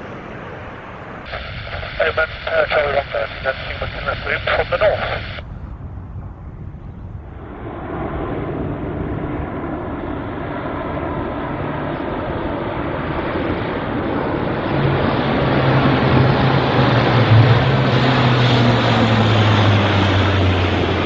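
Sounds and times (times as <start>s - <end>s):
low-flying aircraft engine: 0.0s - 21.0s
steady low hum: 0.8s - 15.2s.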